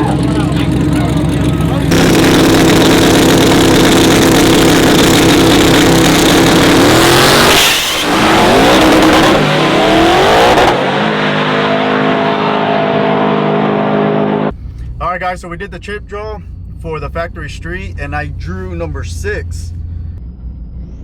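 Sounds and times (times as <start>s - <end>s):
race truck engine revving: 0.0s - 14.6s.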